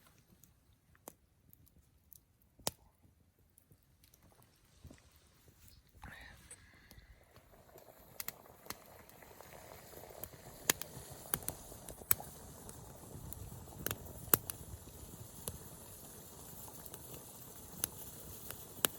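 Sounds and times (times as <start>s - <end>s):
fire popping: 0.0s - 18.9s
low steady hiss: 0.0s - 18.9s
wood fire crackling: 0.0s - 18.9s.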